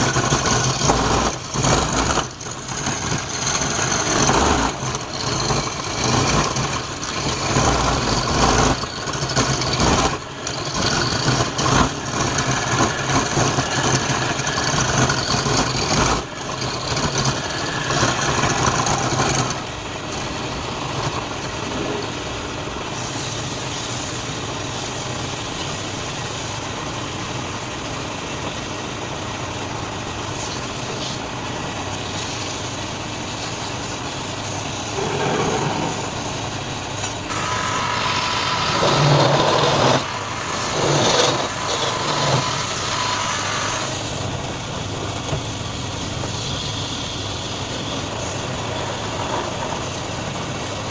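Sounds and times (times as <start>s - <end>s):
turning tool cutting wood: 0.0s - 22.2s, 34.6s - 44.3s
wood lathe running: 0.0s - 22.8s, 33.8s - 50.8s.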